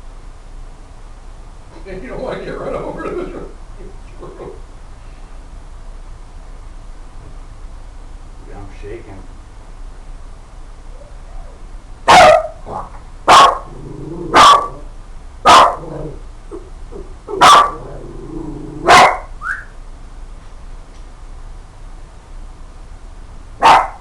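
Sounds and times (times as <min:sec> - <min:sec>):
dog yelping: 0:10.9 - 0:13.7, 0:14.3 - 0:14.8, 0:15.5 - 0:15.8, 0:16.5 - 0:17.8, 0:18.8 - 0:19.3, 0:23.6 - 0:24.0
dog barking: 0:12.1 - 0:13.7, 0:14.3 - 0:14.8, 0:15.4 - 0:15.9, 0:17.3 - 0:17.9, 0:18.8 - 0:19.3, 0:23.6 - 0:24.0.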